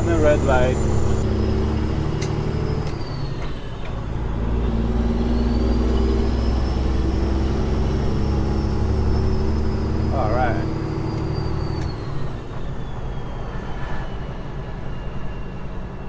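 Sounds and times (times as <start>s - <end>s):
truck diesel engine running: 0.0s - 12.5s.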